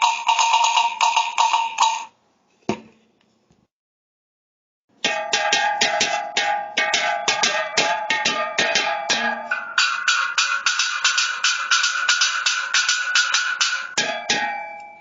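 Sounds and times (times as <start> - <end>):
metal cans struck rhythmically: 0.0 - 2.1, 5.0 - 15.0.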